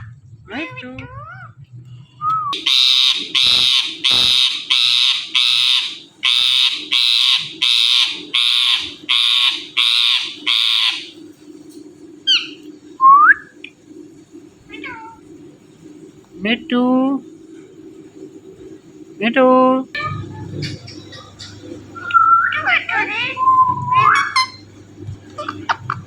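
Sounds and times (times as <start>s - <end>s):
parrot screeching: 2.6s - 11.1s, 20.0s - 24.6s
parrot whistles: 20.0s - 24.6s.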